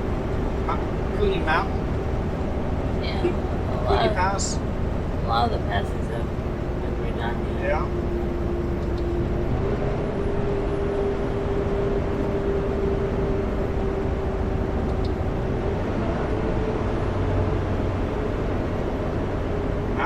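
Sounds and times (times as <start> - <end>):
constant hum: 0.0 - 20.0
road noise: 0.0 - 20.0
truck engine drone: 0.0 - 20.0.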